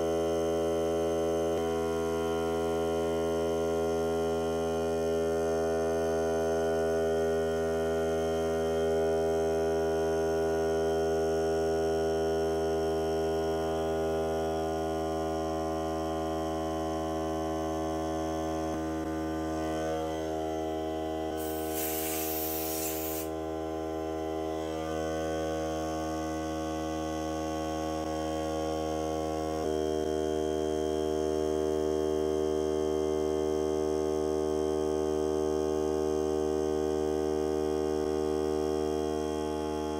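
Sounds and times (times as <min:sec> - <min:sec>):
air compressor motor hum: 0:18.8 - 0:25.1
air hissing: 0:21.4 - 0:23.3.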